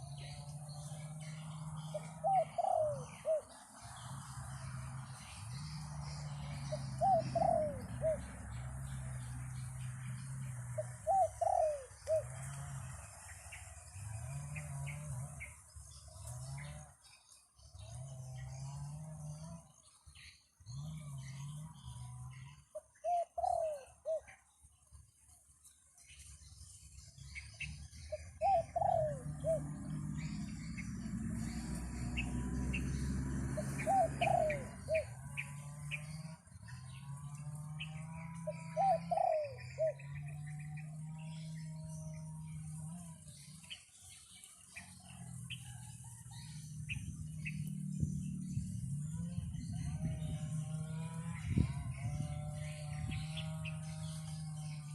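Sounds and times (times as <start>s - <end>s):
doves cooing: 0.0s - 17.0s, 20.6s - 24.4s, 27.2s - 54.9s
small birds chirping: 0.0s - 54.9s
wind rumble on microphone: 45.4s - 54.9s.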